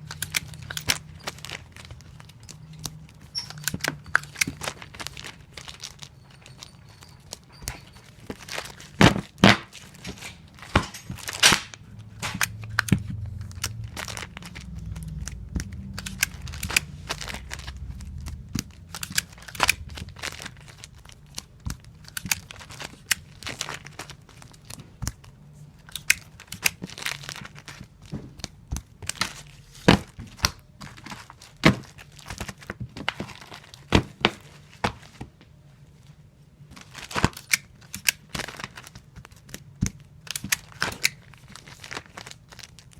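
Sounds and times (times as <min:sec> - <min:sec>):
crinkling: 0:00.0 - 0:42.9.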